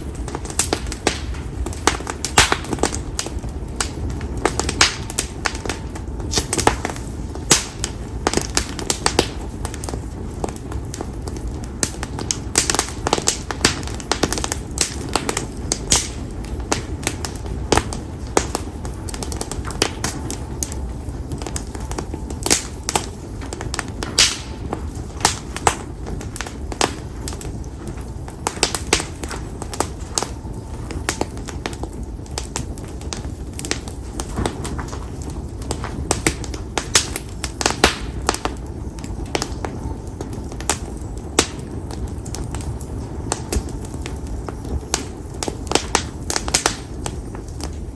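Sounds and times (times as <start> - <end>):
firewood crackling and popping: 0.0 - 47.9
low rush of flame: 0.0 - 47.9.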